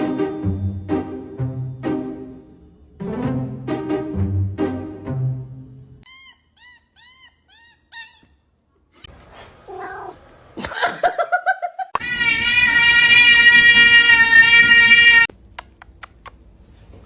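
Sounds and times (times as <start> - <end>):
cat meowing: 9.7 - 10.2, 12.0 - 15.3
cat wavering yowl: 12.0 - 15.3.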